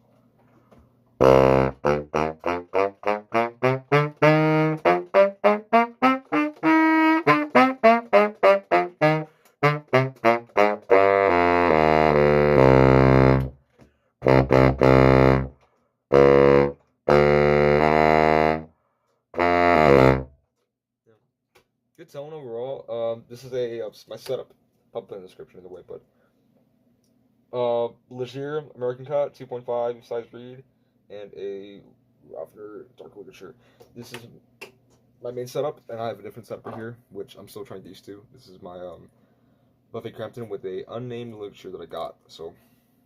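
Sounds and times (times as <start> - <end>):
baritone saxophone playing: 1.2 - 13.6, 14.2 - 20.3.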